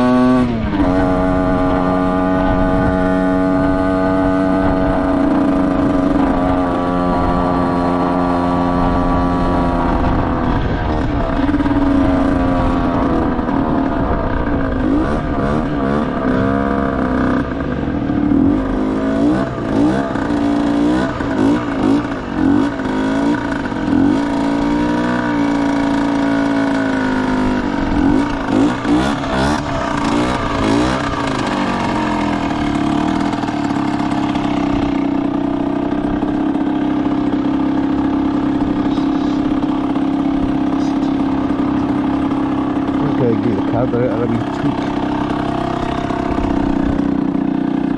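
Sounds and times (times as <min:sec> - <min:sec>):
motorcycle engine revving and idling: 0:00.0 - 0:47.9.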